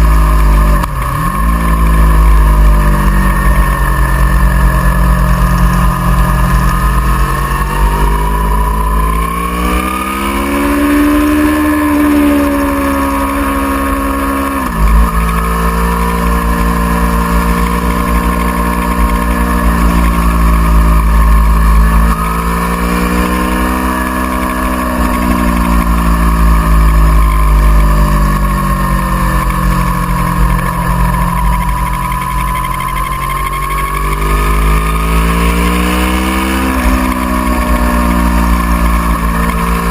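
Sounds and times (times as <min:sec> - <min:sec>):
low rumble: 0:00.0 - 0:09.8, 0:24.8 - 0:36.1
motorcycle engine revving: 0:00.0 - 0:39.9.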